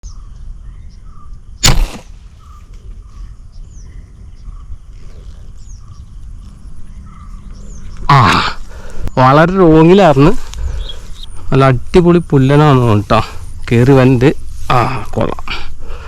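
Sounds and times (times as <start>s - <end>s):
small birds chirping: 0.0s - 16.0s
spear gun firing: 1.6s - 2.3s.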